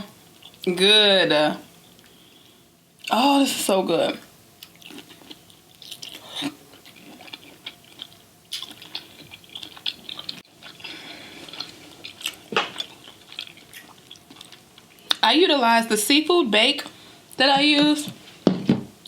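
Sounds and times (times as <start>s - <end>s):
wet chewing and lip-smacking: 4.6s - 15.2s.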